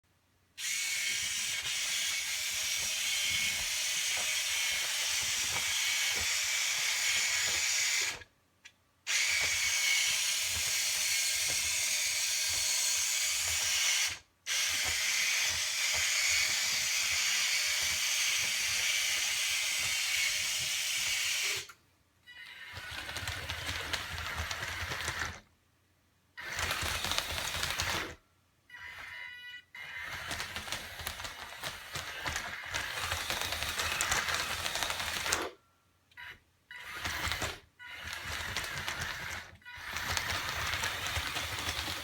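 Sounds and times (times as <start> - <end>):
small electric motors clattering: 0.6 - 8.2, 9.1 - 21.7, 26.4 - 28.2, 29.8 - 35.6, 36.9 - 42.0.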